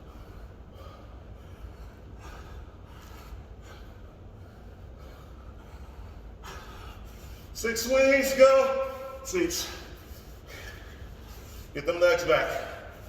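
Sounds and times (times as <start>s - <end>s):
man breathing hard: 0.0s - 7.6s, 9.6s - 11.8s
steady low hum: 0.0s - 13.0s.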